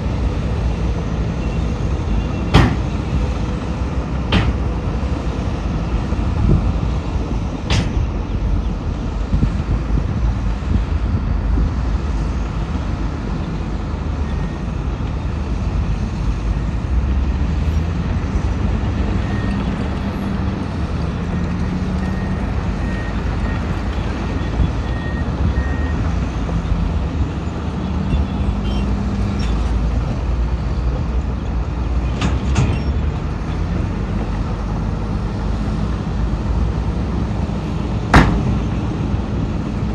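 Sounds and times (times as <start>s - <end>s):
diesel engine rumble: 0.0s - 39.9s
reversing alarm beeping: 24.4s - 26.0s.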